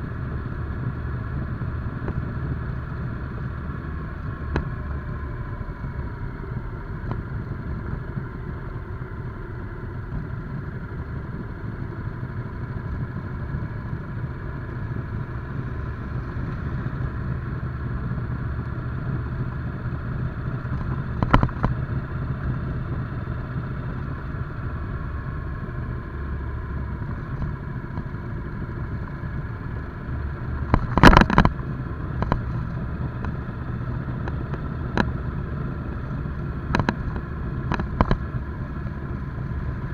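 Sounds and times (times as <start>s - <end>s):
motorcycle engine running: 0.0s - 39.9s
loud clatter: 30.6s - 31.6s.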